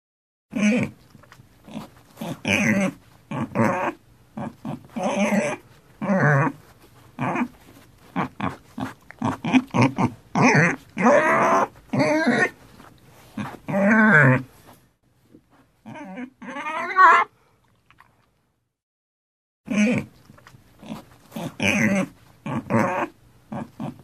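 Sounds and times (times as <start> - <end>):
wild boar piglets calling: 0.6 - 1.0, 1.7 - 6.6, 7.2 - 12.6, 15.8 - 17.3, 19.7 - 20.1, 20.8 - 24.0.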